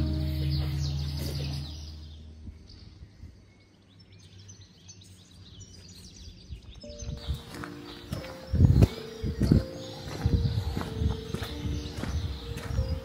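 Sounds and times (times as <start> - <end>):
music with long held notes: 0.0 - 2.2
faint bird chirps: 0.0 - 13.0
quiet outdoor ambience: 0.0 - 13.0.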